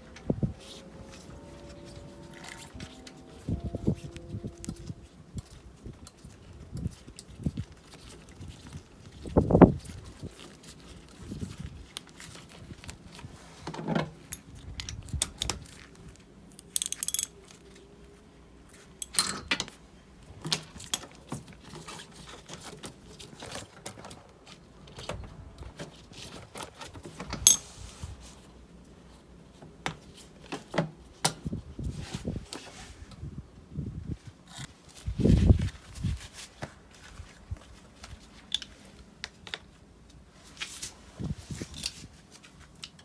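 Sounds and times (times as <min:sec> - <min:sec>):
metallic clinks and knocks: 0:16.6 - 0:17.4.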